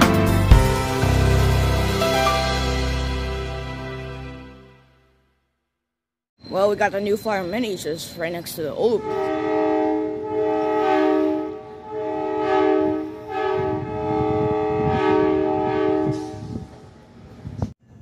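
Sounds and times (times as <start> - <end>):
multi-chime train horn: 8.9 - 16.6.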